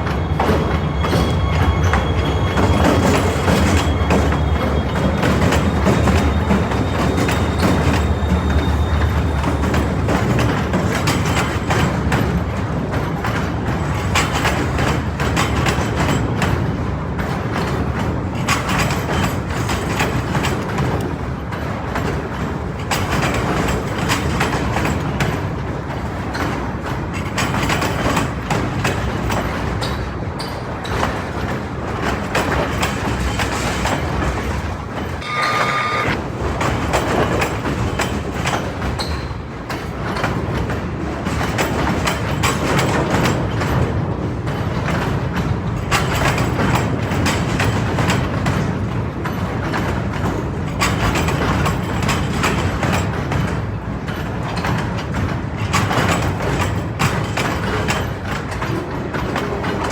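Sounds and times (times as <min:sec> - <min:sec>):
train rumble: 0:00.0 - 0:59.9
train wheels clicking on rail joints: 0:00.0 - 0:59.9
short high steady tone: 0:35.2 - 0:36.2.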